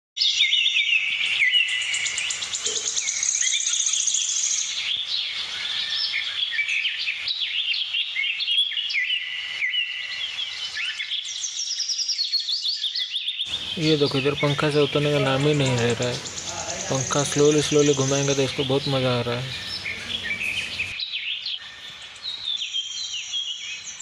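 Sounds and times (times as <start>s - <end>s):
fast high bird trill: 13.4s - 21.0s
budgies chattering: 13.5s - 21.0s.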